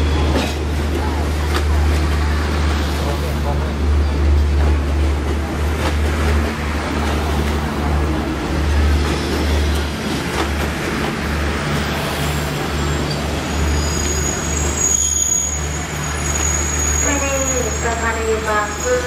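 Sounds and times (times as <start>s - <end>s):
train wheels rumbling on rails: 0.0s - 19.0s
thin high squeal: 12.9s - 17.8s.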